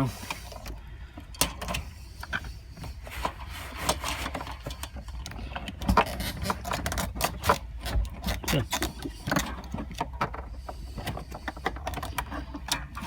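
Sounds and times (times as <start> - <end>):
fuel pump knocking and scraping: 0.0 - 13.0.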